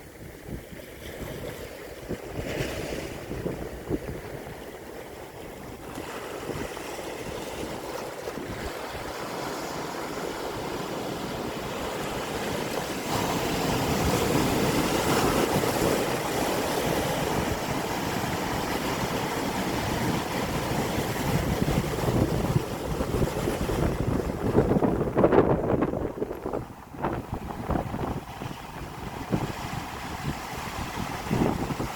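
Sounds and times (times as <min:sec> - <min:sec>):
sea waves breaking: 0:00.0 - 0:31.9
wind on microphone: 0:00.0 - 0:31.9.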